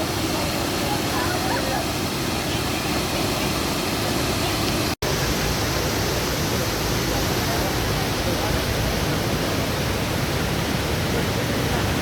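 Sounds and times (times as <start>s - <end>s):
waterfall roar: 0.0s - 12.0s.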